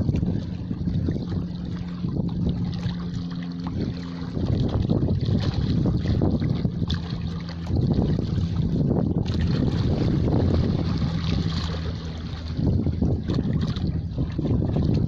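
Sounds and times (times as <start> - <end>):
low steady hum: 0.0 - 15.0
wind buffeting the microphone: 0.0 - 15.0.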